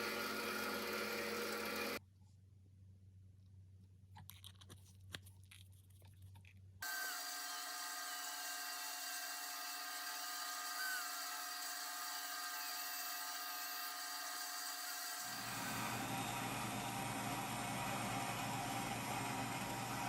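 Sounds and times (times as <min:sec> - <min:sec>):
small electric motor humming: 0:00.0 - 0:02.0, 0:06.8 - 0:20.0.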